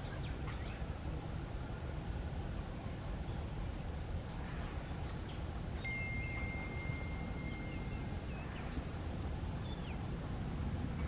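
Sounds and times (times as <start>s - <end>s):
birds chirping: 0.0s - 1.0s, 4.5s - 10.2s.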